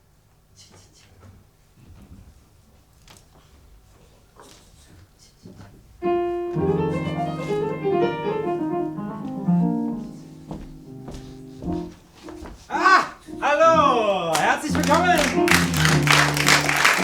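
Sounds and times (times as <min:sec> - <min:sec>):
piano music: 0:06.0 - 0:17.0.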